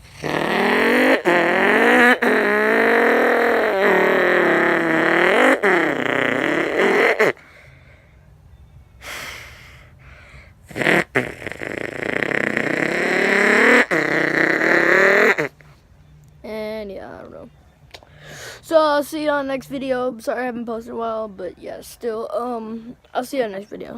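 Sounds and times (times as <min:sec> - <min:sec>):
person buzzing lips like a car: 0:00.0 - 0:07.7, 0:09.0 - 0:15.8
quick breaths: 0:07.4 - 0:08.3, 0:09.0 - 0:10.7, 0:18.0 - 0:18.7.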